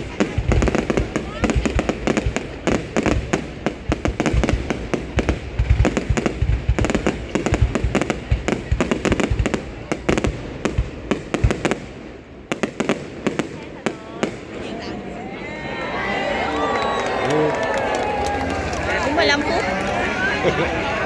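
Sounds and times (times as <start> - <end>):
deep fireworks booms: 0.0 - 14.7
fireworks bangs and crackling: 0.0 - 15.2, 16.6 - 21.0.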